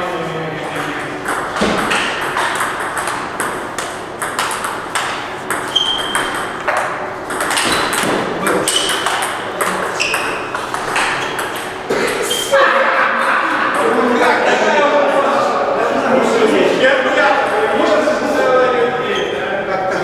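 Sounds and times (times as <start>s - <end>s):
table tennis ball clicking: 1.2s - 11.8s.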